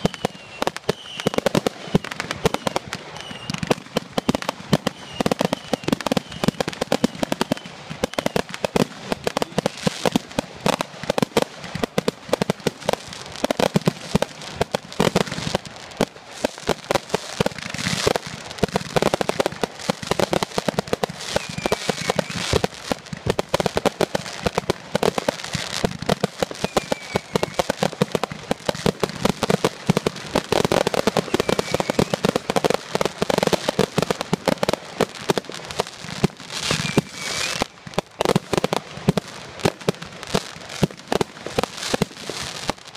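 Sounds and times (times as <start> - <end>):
faint falling whistle: 0.0 - 8.4, 21.3 - 22.5, 26.6 - 27.7, 31.2 - 32.2, 36.7 - 37.6
fireworks crackling and banging: 0.0 - 42.9.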